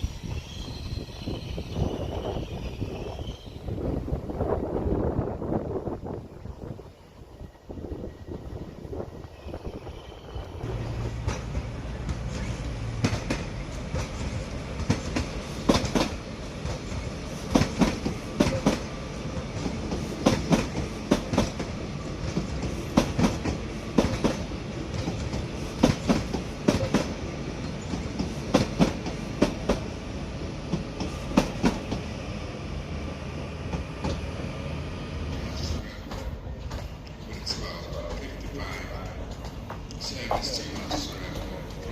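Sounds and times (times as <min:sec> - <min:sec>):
train rumble: 0:00.0 - 0:41.9
train wheels clicking over joints: 0:10.4 - 0:29.9, 0:30.6 - 0:32.1, 0:35.4 - 0:41.9.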